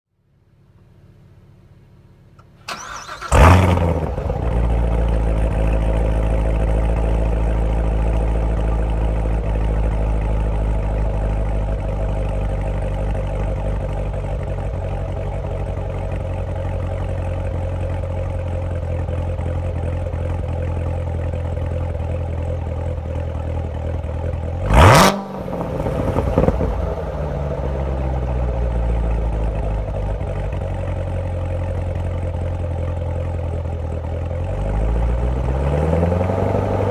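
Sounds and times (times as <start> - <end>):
car engine starting and idling: 0.4 - 36.9
car engine revving: 2.6 - 12.4, 24.6 - 31.0, 34.4 - 36.9.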